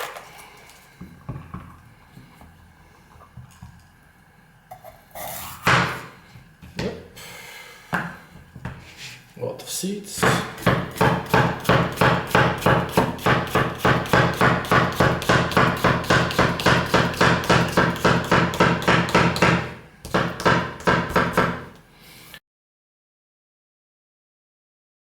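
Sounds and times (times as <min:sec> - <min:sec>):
knife chopping on cutting board: 0:05.6 - 0:06.1, 0:10.2 - 0:21.8.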